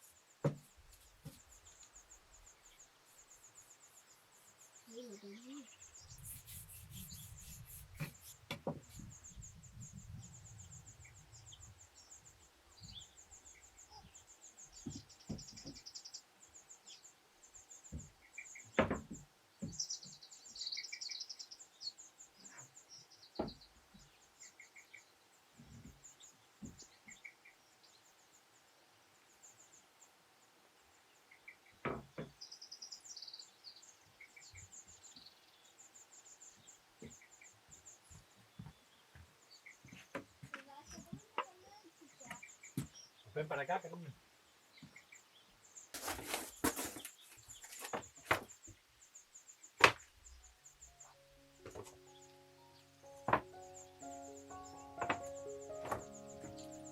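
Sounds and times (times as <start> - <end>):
birds singing: 0.0 - 28.7, 31.1 - 56.9
sharp knocks: 53.3 - 53.6, 55.0 - 56.6.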